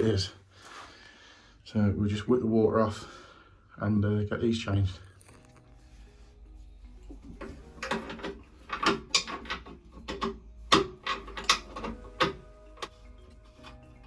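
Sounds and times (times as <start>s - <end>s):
hand tools clicking on plumbing fittings: 7.2s - 14.0s.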